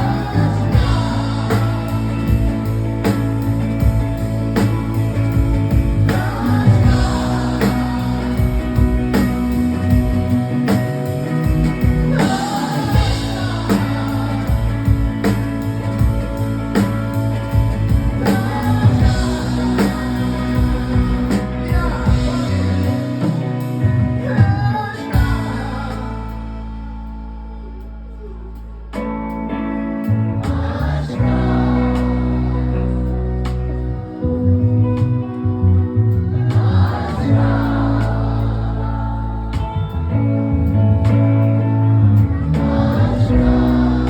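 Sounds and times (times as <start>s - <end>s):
person singing: 0.0s - 3.0s, 5.7s - 10.8s, 11.4s - 16.1s, 18.0s - 28.9s
rock band playing: 0.0s - 27.3s, 29.0s - 44.0s.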